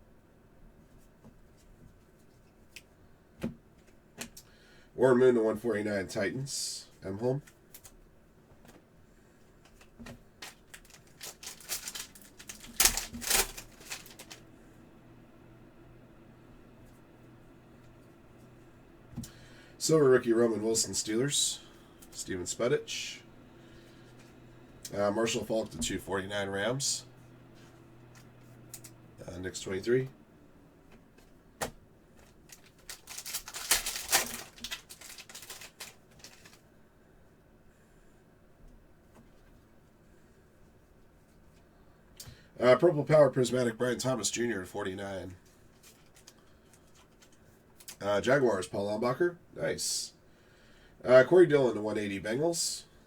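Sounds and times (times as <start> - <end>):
trading cards being shuffled: 9.7 - 14.4, 31.6 - 36.6
wrapper crinkling: 10.4 - 14.5, 32.2 - 36.6.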